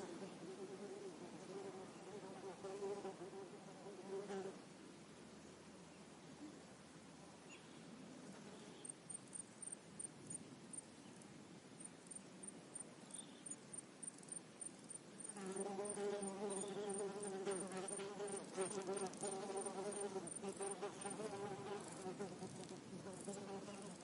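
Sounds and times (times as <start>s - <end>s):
flying insect buzzing: 15.4s - 24.0s.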